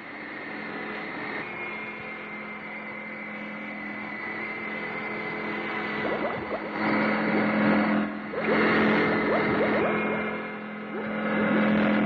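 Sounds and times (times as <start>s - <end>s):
high whine: 1.8s - 12.0s
cartoon boat motor drone: 2.0s - 12.0s
rising sweeps: 8.3s - 11.4s.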